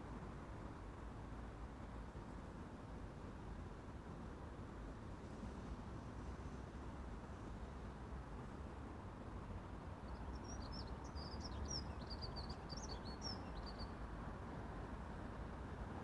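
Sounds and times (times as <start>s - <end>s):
small bird twittering: 10.3s - 14.0s.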